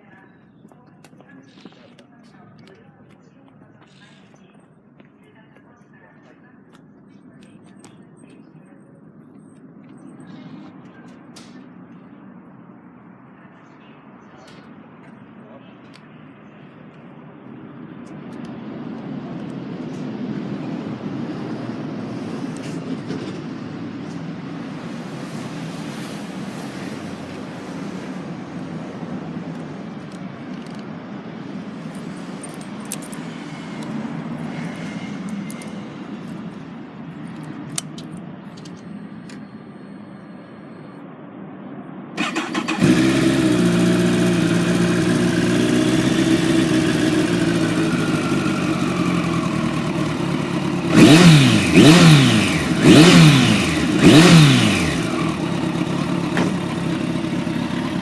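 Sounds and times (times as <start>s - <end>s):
motorcycle engine idling: 42.2s - 58.0s
motorcycle engine starting: 42.2s - 58.0s.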